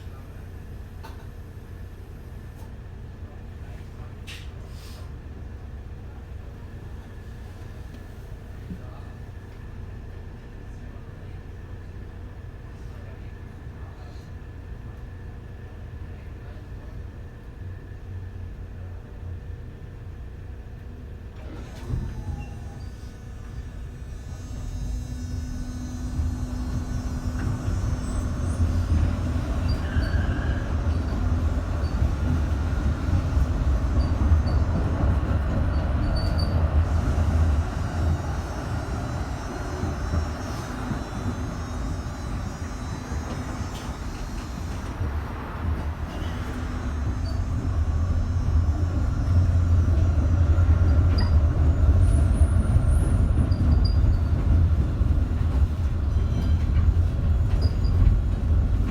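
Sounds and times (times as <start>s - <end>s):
tram rumbling on rails: 0.0s - 58.9s.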